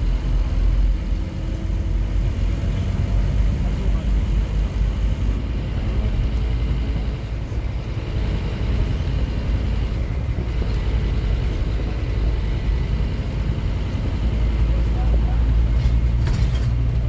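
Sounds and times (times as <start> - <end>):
bus diesel engine rumble: 0.0 - 17.0
road noise: 0.0 - 17.0.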